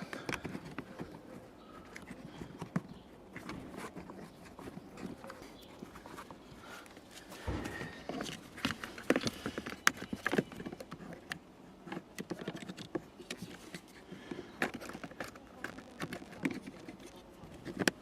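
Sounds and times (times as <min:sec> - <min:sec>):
hard plastic parts clicking: 0:00.0 - 0:18.0
dull thump: 0:07.4 - 0:08.2.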